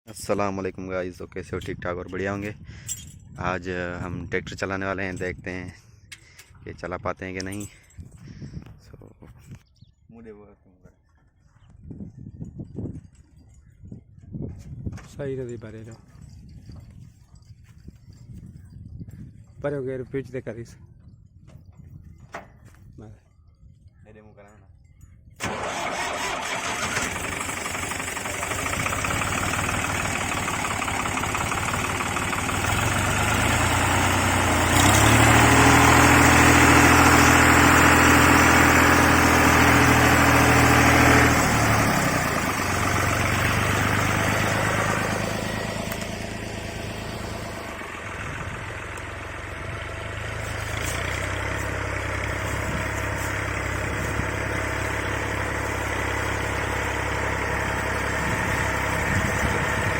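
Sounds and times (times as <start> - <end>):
tractor engine running: 25.4 - 59.9.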